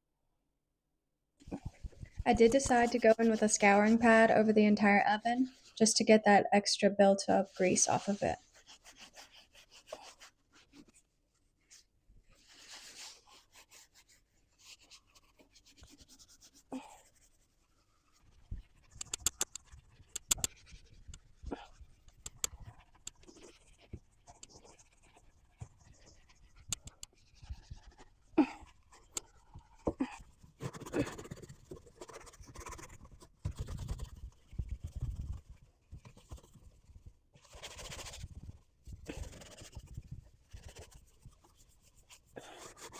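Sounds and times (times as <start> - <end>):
scouring pad scrubbing oven: 2.2 - 4.6
sharp clicks and knocks: 18.9 - 21.2.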